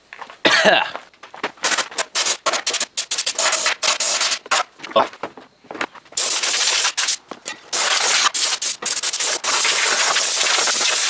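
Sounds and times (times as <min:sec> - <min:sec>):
compressed air blow gun blasting: 0:01.6 - 0:04.7, 0:06.2 - 0:11.0.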